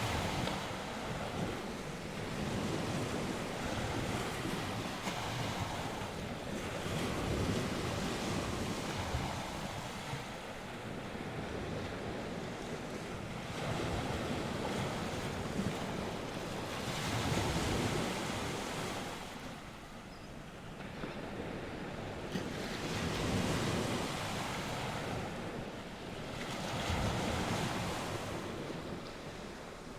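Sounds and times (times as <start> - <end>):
wind buffeting microphone: 0.0 - 19.6
waves washing ashore: 0.0 - 29.9.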